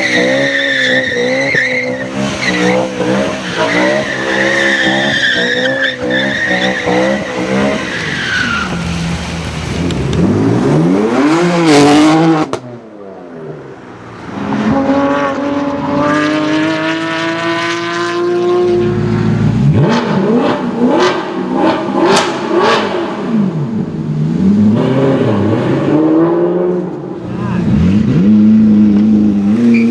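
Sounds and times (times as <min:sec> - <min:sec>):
tyre squeal: 0:00.0 - 0:08.9, 0:29.6 - 0:29.9
car engines revving: 0:00.0 - 0:29.9
car pulling off: 0:00.0 - 0:29.9.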